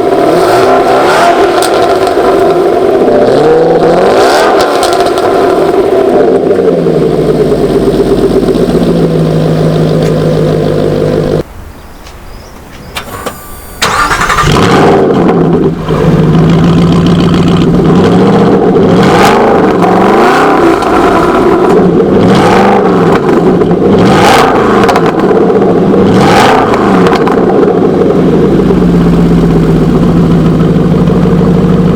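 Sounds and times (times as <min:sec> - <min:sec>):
car engine revving: 0:00.0 - 0:31.9
starter motor cranking: 0:12.8 - 0:14.8.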